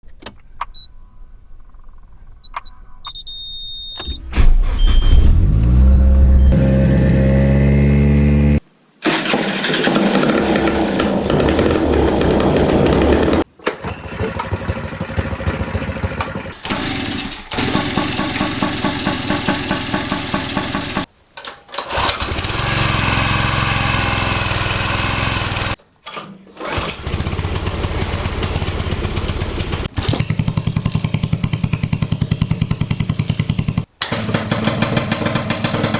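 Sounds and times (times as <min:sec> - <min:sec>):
engine starting and speeding up: 0:04.0 - 0:08.6
engines running: 0:04.0 - 0:08.6.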